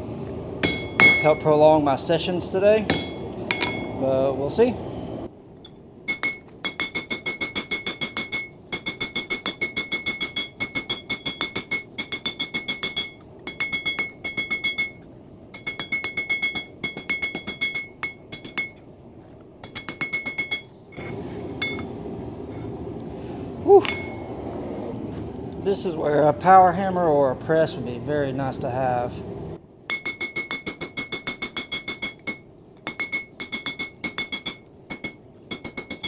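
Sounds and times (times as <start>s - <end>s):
hammer striking steel on anvil: 0.6s - 1.7s, 2.8s - 4.2s, 5.6s - 18.8s, 19.6s - 22.0s, 23.8s - 24.4s, 29.9s - 36.0s.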